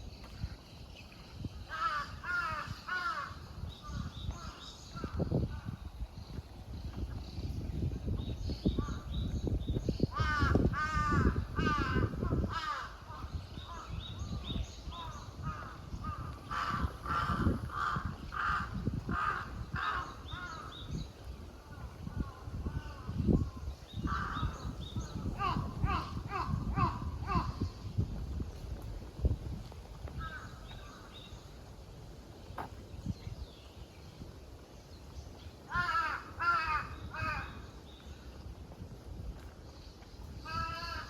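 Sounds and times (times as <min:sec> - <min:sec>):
soft footstep thumps: 0:32.4 - 0:32.8
crow cawing: 0:35.7 - 0:37.6, 0:40.5 - 0:41.0.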